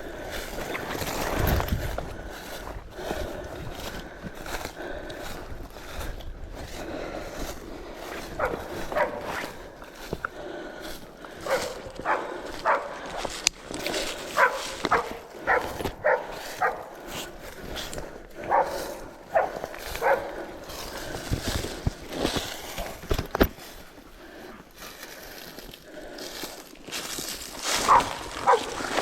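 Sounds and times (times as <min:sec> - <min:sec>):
dog barking: 0:08.3 - 0:09.6, 0:11.4 - 0:13.1, 0:14.3 - 0:17.0, 0:18.4 - 0:20.5, 0:27.8 - 0:28.9.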